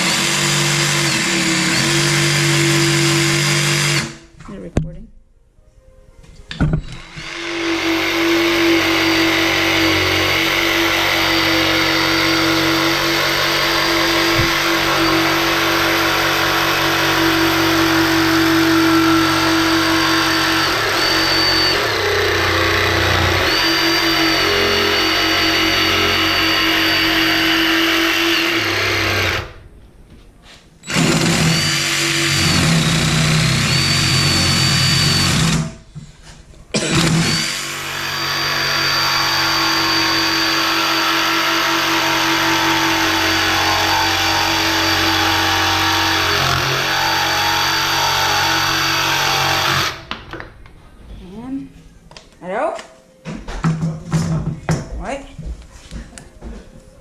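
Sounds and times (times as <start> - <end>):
jigsaw cutting wood: 0.0 - 4.3, 7.0 - 29.6, 30.9 - 35.8, 36.8 - 50.1.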